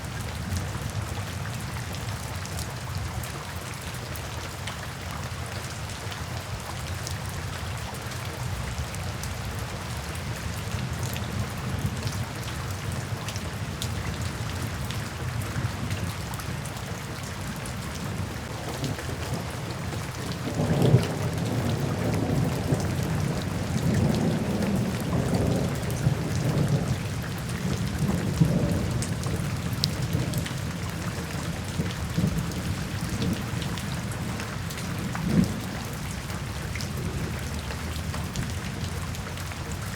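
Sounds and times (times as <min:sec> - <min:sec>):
rain falling into puddles: 0:00.0 - 0:39.9
thunder rumbling: 0:18.2 - 0:27.0.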